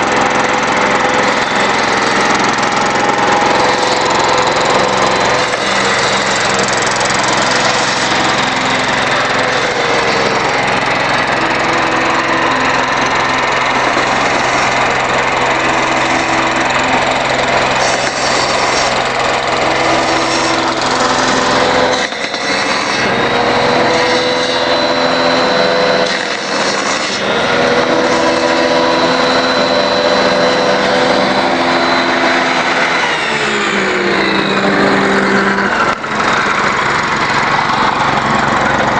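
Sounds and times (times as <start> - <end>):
generator engine running: 0.0 - 38.9.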